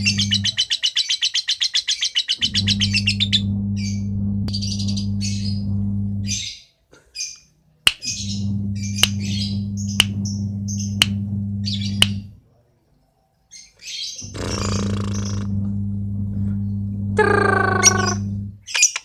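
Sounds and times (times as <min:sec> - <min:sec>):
steady low hum: 0:00.0 - 0:00.6, 0:02.4 - 0:06.5, 0:08.0 - 0:12.4, 0:14.2 - 0:18.6
lovebird chirping: 0:00.0 - 0:06.6, 0:08.0 - 0:12.3, 0:13.5 - 0:15.8, 0:16.6 - 0:19.0
sharp ticks: 0:09.0 - 0:09.3, 0:09.9 - 0:11.2.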